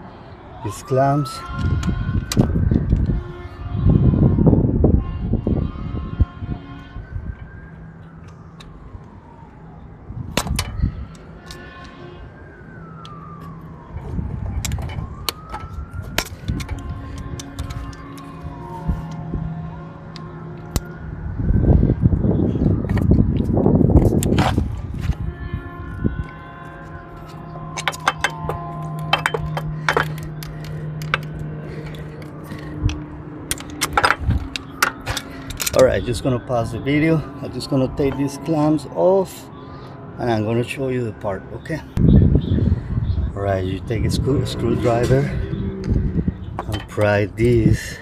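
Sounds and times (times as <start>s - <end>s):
siren wailing: 0.0s - 48.0s
hand tools clinking on metal: 27.8s - 31.3s
hand tools clicking on metal: 27.8s - 32.3s, 32.9s - 35.9s.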